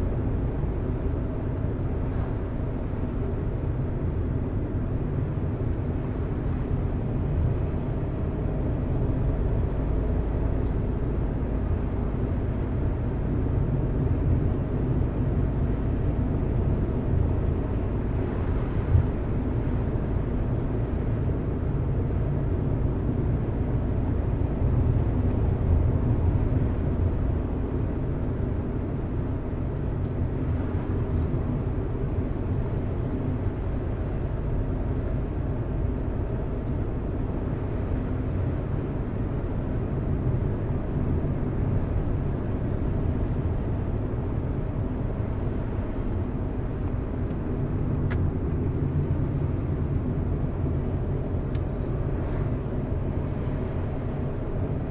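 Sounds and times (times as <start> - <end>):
car driving on a road: 0.0 - 54.9.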